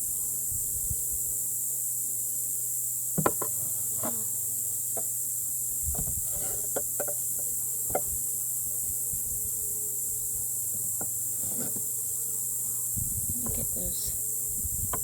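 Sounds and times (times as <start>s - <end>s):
wooden knocks and clicks: 3.2s - 3.6s, 6.0s - 7.2s
steady high hiss: 12.4s - 15.0s.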